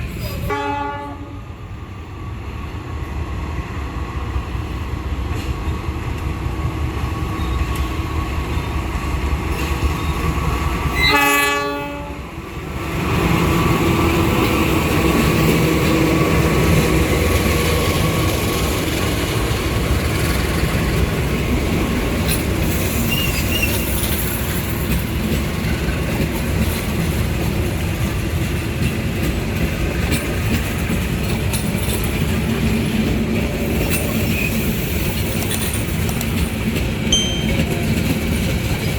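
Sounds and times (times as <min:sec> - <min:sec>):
train rumble and wheel clatter: 0:00.0 - 0:38.9
train horn blast: 0:00.5 - 0:01.5, 0:10.9 - 0:12.3.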